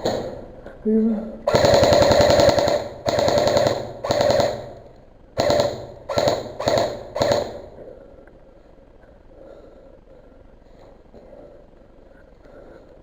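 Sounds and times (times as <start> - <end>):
airsoft rifle full-auto bursts: 1.5 - 7.8.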